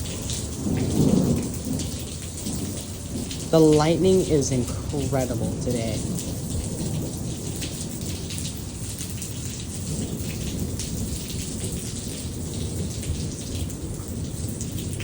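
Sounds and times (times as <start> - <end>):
low thunder rumble: 0.0 - 8.9
rain drops tapping: 0.0 - 15.0.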